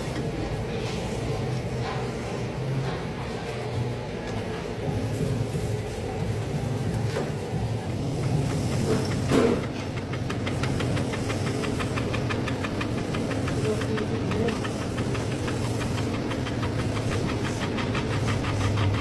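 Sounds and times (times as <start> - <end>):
lathe humming: 7.6 - 19.0
rapid even ticking: 7.9 - 19.0.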